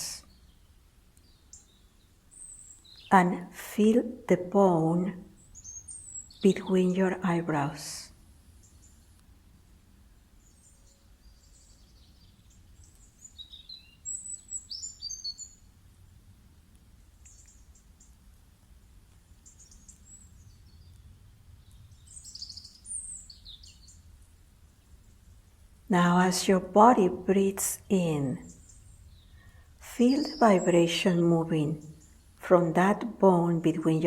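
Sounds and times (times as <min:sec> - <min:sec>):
songbirds chirping and whistling: 0:00.1 - 0:03.3, 0:04.9 - 0:07.2, 0:10.4 - 0:15.7, 0:17.2 - 0:18.2, 0:19.4 - 0:24.1, 0:26.2 - 0:33.7.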